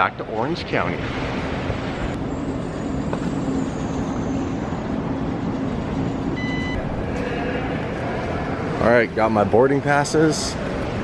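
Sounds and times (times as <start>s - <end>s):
vehicle running hum: 1.0s - 8.9s
faint high whine: 2.2s - 9.2s.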